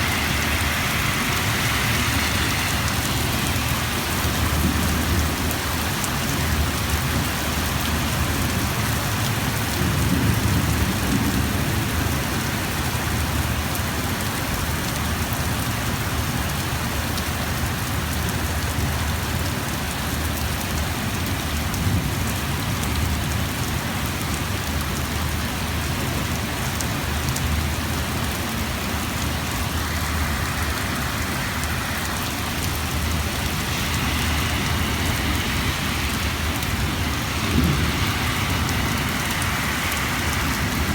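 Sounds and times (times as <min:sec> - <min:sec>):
heavy rain pouring: 0:00.0 - 0:40.9
low rumble: 0:27.8 - 0:40.9.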